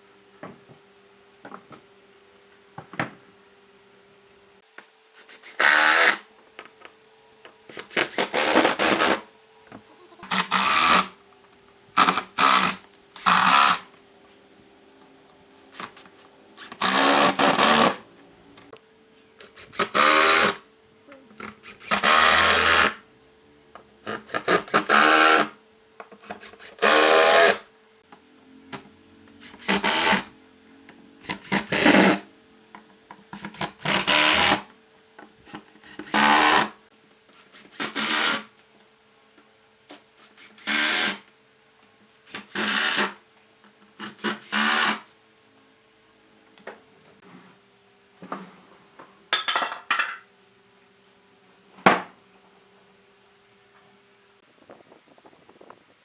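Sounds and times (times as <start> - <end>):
faint steady hum: 0.0 - 56.0
tool working wood in strokes: 5.2 - 6.2, 7.7 - 9.3, 10.2 - 11.2, 12.0 - 13.9, 15.8 - 18.0, 19.4 - 20.6, 24.1 - 25.5, 26.2 - 27.6, 29.4 - 30.4, 31.2 - 32.2, 33.3 - 34.7, 35.5 - 38.5, 40.2 - 41.3, 42.3 - 43.2, 44.0 - 45.0.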